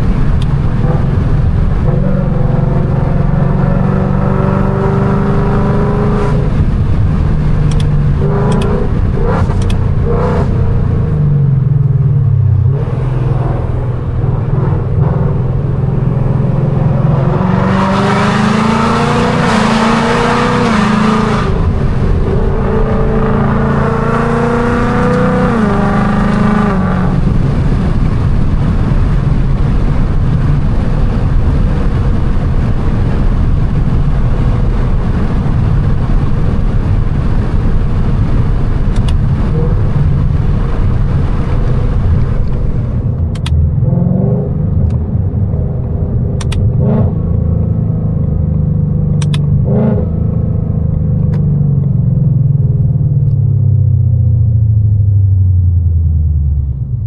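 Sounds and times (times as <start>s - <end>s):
car engine revving hard: 0.0s - 11.6s, 12.6s - 47.9s
sharp clicks: 7.6s - 9.9s, 38.9s - 39.2s, 43.2s - 43.6s, 46.4s - 46.7s, 49.2s - 49.5s.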